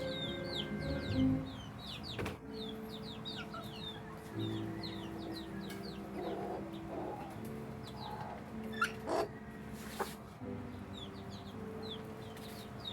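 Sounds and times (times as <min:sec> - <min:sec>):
chickens clucking: 0:00.0 - 0:12.9
chicks peeping: 0:00.0 - 0:12.9
chicken squawks: 0:08.0 - 0:09.4.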